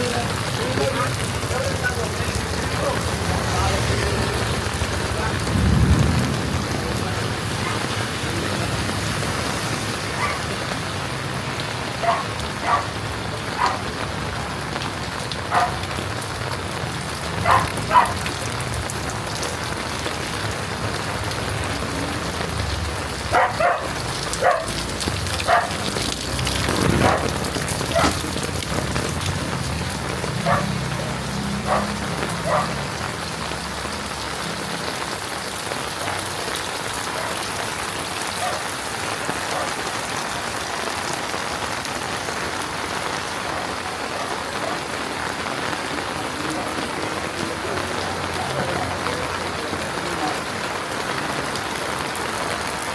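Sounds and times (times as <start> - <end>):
heavy rain falling: 0.0 - 52.9.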